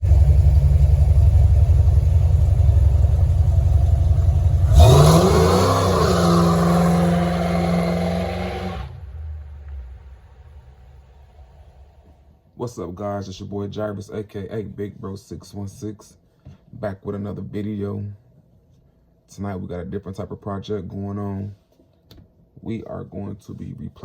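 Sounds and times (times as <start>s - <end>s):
engine-like low rumble: 0.0s - 13.5s.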